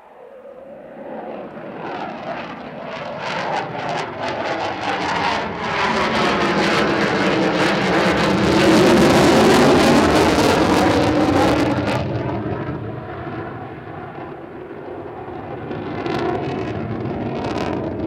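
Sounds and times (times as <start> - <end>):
jet engine roar: 0.0 - 18.0.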